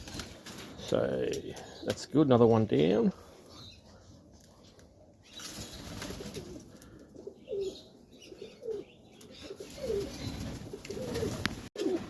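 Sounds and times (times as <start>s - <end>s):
rustling: 3.2s - 7.1s, 8.6s - 12.0s
pigeons cooing: 3.2s - 12.0s.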